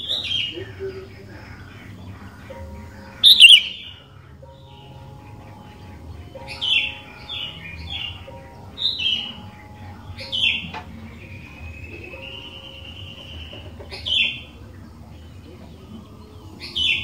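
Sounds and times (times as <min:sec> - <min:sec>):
bulbul singing whistled notes: 0:03.2 - 0:03.8.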